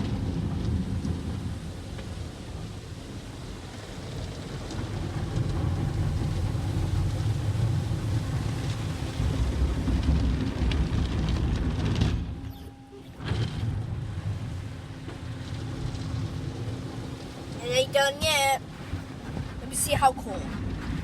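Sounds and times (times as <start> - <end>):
water spray drumming on car: 0.0 - 12.1
car wash machinery rumble: 0.0 - 21.0.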